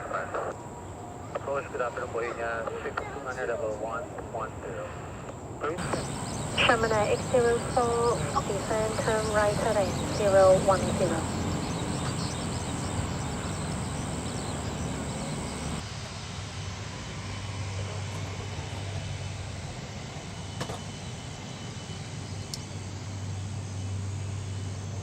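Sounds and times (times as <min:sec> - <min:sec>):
jet engine hiss: 0:04.7 - 0:25.0
low steady hum: 0:05.8 - 0:15.8.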